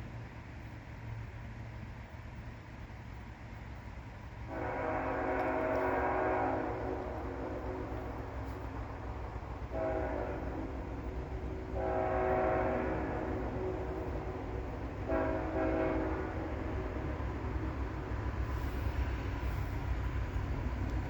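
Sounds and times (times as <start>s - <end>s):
train rumble: 0.0s - 21.0s
locomotive air horn: 4.4s - 19.9s.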